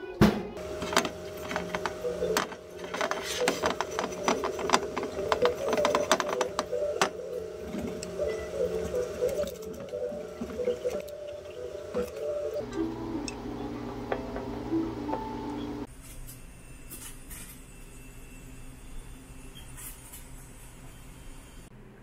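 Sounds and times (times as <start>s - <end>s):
steady hum: 0.4s - 19.7s
plastic bottles clicking and knocking: 0.6s - 12.4s.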